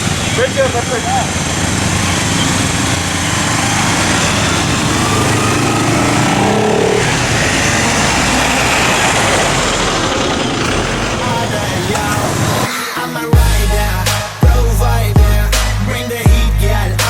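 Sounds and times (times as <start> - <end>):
motorcycle engines running: 0.0 - 12.7.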